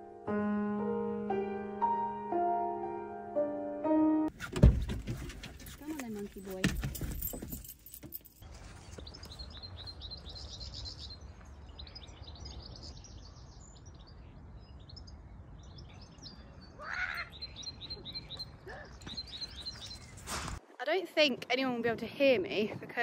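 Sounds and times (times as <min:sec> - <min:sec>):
songbirds chirping and trilling: 0:05.2 - 0:20.6
wind rumble on microphone: 0:21.2 - 0:23.0.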